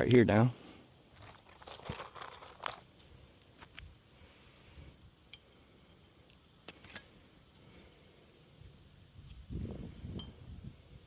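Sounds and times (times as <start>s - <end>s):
metallic jingling of nails: 1.1s - 5.5s
light clicks of tools: 3.2s - 5.6s.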